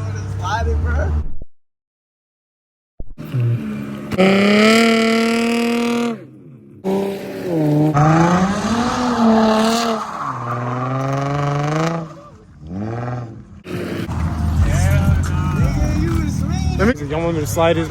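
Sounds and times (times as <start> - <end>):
car engine revving hard: 3.2 - 16.9.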